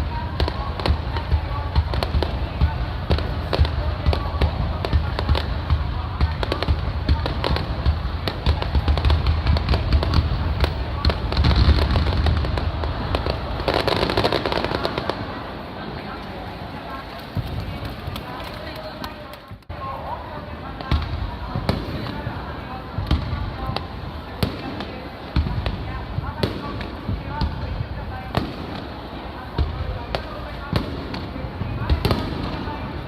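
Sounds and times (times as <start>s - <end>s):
fireworks booming: 0.0s - 16.1s, 20.5s - 33.0s
fireworks crackling: 0.0s - 33.0s.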